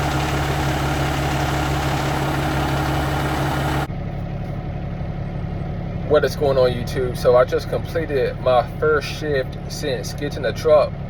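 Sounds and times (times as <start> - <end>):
low hum: 0.0 - 3.9
diesel engine idling: 0.0 - 11.0.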